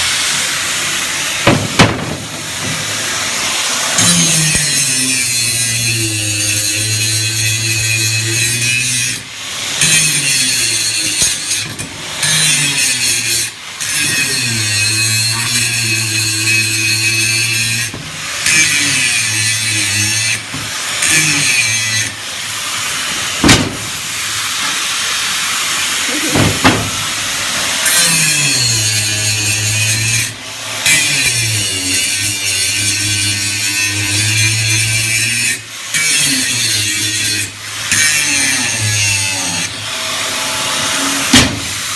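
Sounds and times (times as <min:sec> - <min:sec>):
angle grinder grinding steel: 0:00.0 - 0:41.9
sharp knocks: 0:01.4 - 0:02.8, 0:23.4 - 0:24.0, 0:26.3 - 0:27.1.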